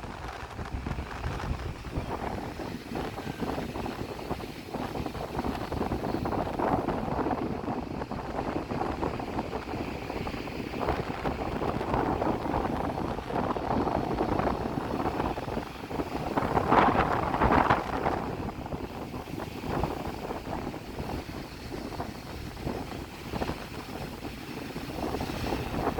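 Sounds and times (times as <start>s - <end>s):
breaking surf: 0.0s - 25.9s
wind buffeting microphone: 0.0s - 25.9s.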